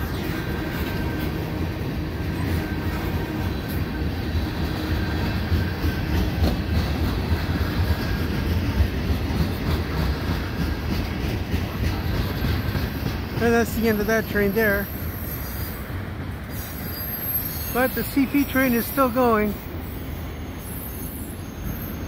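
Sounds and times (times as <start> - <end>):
clickety-clack over rail joints: 0.0 - 14.9
freight train wheels rumbling: 0.0 - 22.0.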